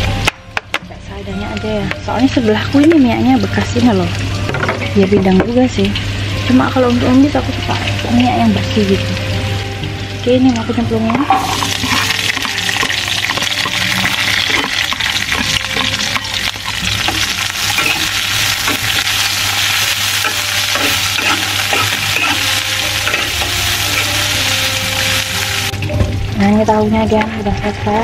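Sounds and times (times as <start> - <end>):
vegetables sizzling in hot oil: 2.1 - 28.0
metal spatula scraping a pan: 11.1 - 24.3.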